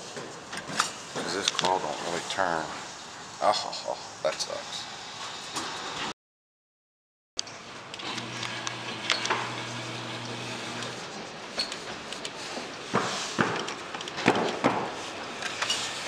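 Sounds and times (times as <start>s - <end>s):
claw machine motor hum: 7.6s - 11.5s.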